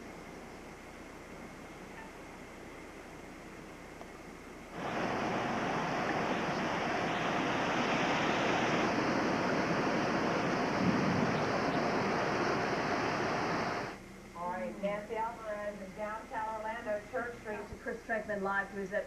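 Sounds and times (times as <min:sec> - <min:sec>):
wind and rain rushing: 0:04.4 - 0:14.0.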